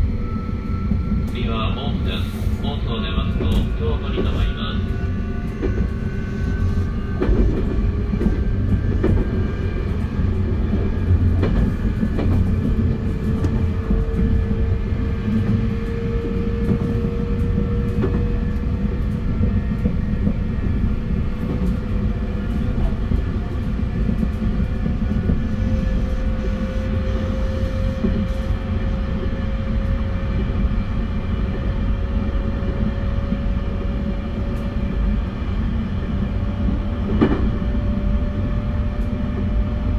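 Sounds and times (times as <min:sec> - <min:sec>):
train wheels rumbling on track: 0:00.0 - 0:39.9.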